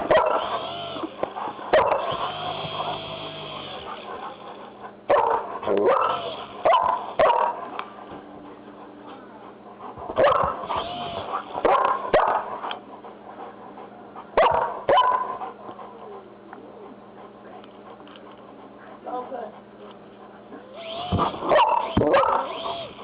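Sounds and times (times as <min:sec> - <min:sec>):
dog barking: 0:00.0 - 0:00.8, 0:01.7 - 0:03.0, 0:05.1 - 0:07.8, 0:10.2 - 0:12.6, 0:14.4 - 0:15.4, 0:21.2 - 0:22.9.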